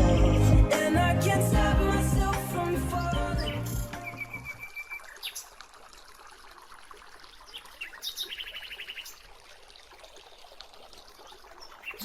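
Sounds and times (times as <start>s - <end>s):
flowing water: 0.0s - 12.0s
bird chirping: 2.9s - 5.5s.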